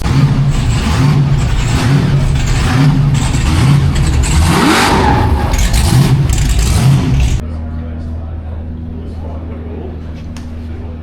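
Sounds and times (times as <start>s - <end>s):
racing car engine revving: 0.0s - 7.4s.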